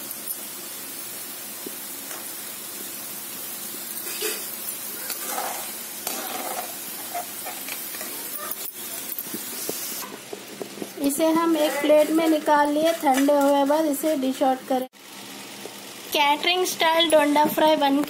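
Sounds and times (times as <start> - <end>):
food sizzling in hot oil: 0.0 - 18.0
steel spoon scraping: 4.0 - 4.5, 5.1 - 10.0.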